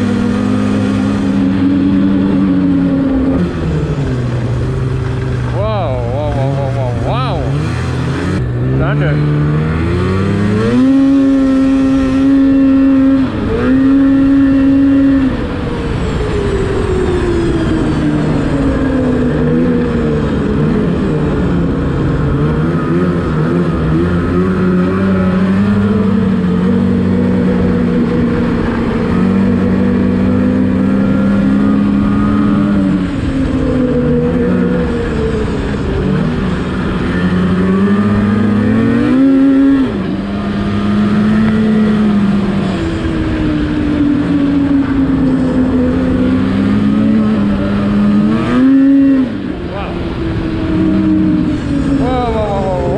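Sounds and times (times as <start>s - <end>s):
snowmobile engine revving: 0.0s - 52.9s.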